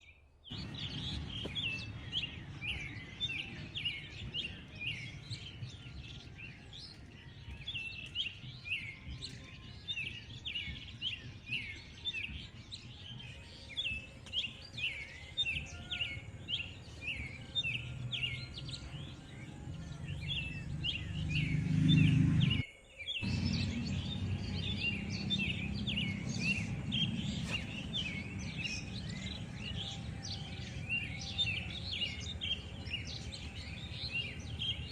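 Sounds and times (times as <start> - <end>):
small birds chirping: 0.0 - 34.9
low background rumble: 23.2 - 34.9.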